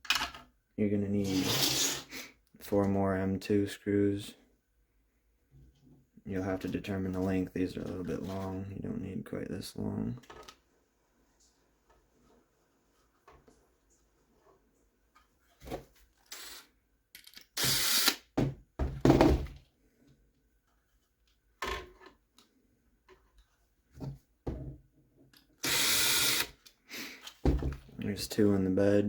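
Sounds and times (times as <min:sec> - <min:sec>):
screws and plastic parts clicking: 0:16.2 - 0:18.3, 0:25.3 - 0:27.4.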